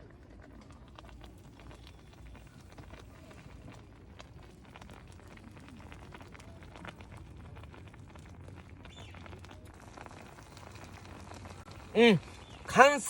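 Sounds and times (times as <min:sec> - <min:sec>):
crackling and popping: 0:00.0 - 0:13.0
stew simmering in pot: 0:00.0 - 0:13.0.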